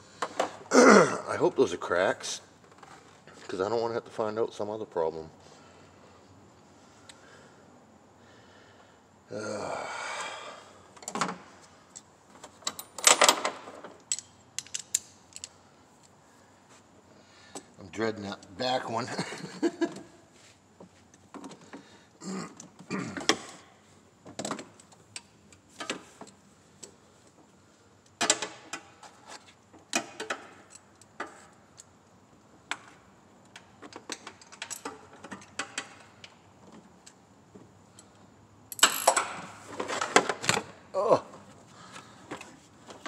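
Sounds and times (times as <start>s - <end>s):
hand tools clicking and clinking: 14.0s - 16.1s.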